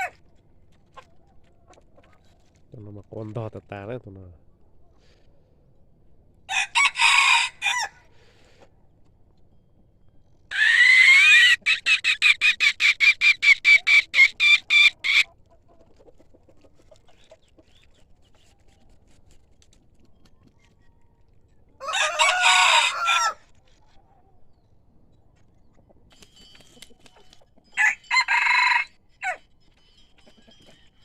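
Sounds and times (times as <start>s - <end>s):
rooster crowing and clucking: 6.5s - 8.3s, 10.5s - 15.3s, 21.8s - 23.6s, 27.7s - 29.5s.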